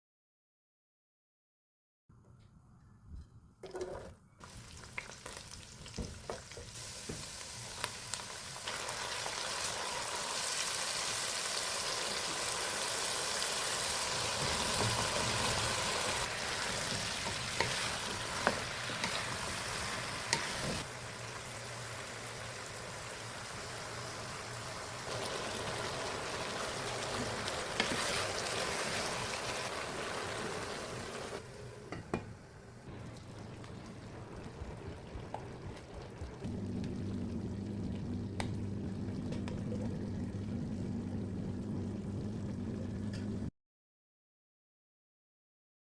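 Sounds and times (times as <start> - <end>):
food sizzling in a pan: 4.4 - 32.0.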